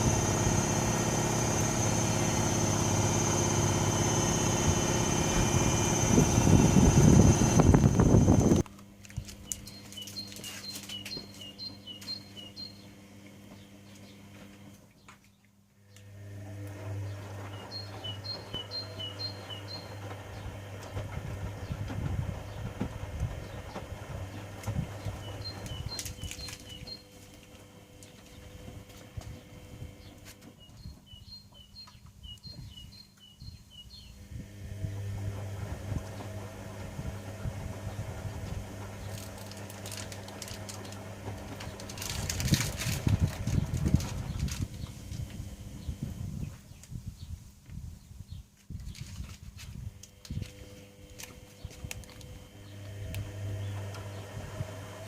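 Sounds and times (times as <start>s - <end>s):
washing machine motor hum: 0.0s - 15.0s, 15.7s - 31.7s, 33.9s - 46.7s, 49.2s - 55.0s.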